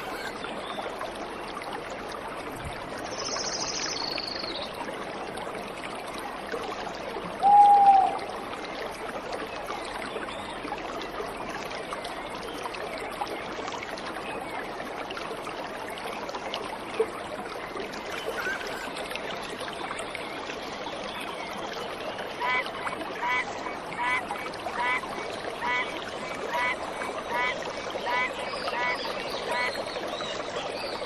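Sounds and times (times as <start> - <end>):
waterfall flowing: 0.0 - 0.4, 17.9 - 19.6
bird whistled call: 7.4 - 8.2.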